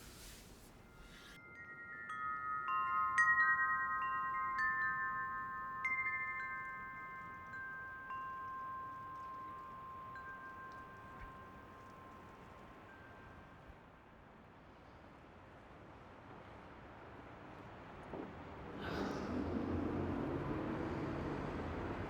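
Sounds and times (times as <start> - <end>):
wind chimes ringing: 0.0 - 13.6.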